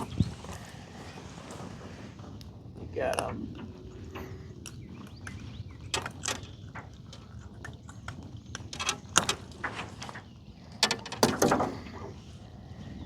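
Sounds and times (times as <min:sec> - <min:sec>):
knocks and clicks of handling: 0:03.6 - 0:12.2.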